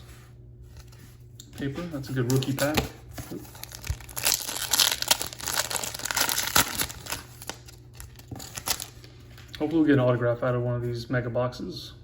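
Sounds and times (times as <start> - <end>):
card pack wrapper crinkling: 2.1 - 9.5.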